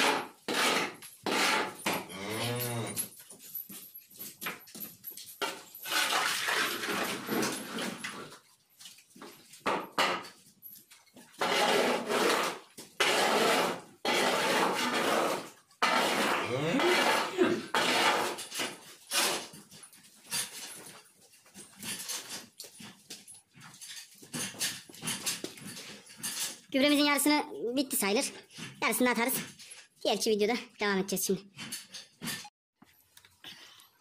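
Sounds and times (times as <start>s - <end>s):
shovel scraping barn floor: 0.0s - 3.1s, 5.4s - 8.5s, 11.2s - 21.0s.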